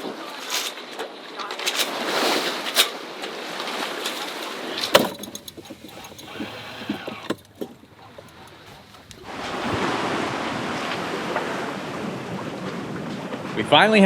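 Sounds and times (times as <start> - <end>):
water rushing past a sailboat: 0.0 - 14.0
wind on microphone: 4.7 - 13.8
light clicks and knocks: 4.8 - 9.2.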